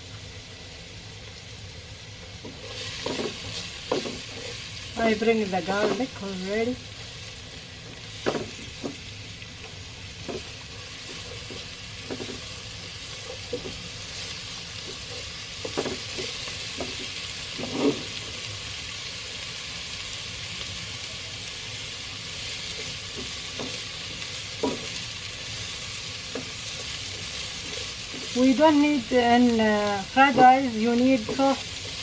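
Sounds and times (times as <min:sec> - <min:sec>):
onion sizzling in a pan: 0:00.0 - 0:32.0
stirring knocks: 0:02.4 - 0:04.5, 0:10.2 - 0:12.5, 0:13.2 - 0:13.8, 0:24.6 - 0:24.9.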